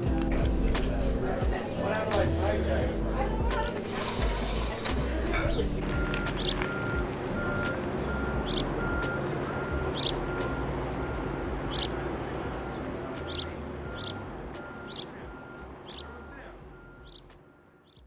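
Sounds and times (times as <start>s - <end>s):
bird chirping: 5.4s - 10.8s, 11.4s - 18.0s.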